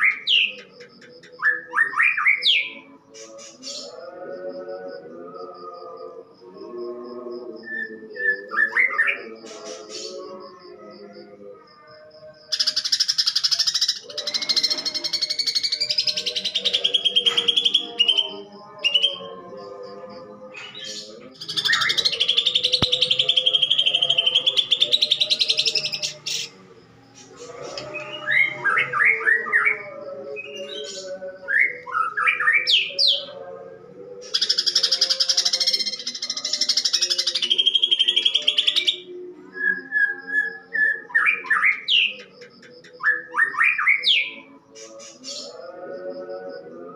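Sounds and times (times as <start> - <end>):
bird singing loudly: 20.6 - 26.6, 34.3 - 39.1.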